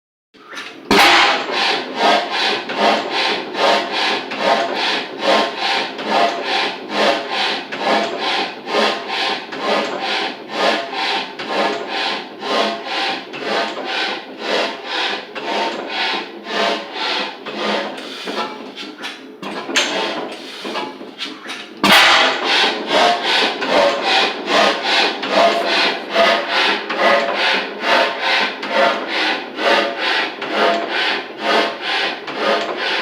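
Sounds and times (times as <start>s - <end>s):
hit-and-miss engine running: 0.8s - 8.2s, 19.7s - 31.8s.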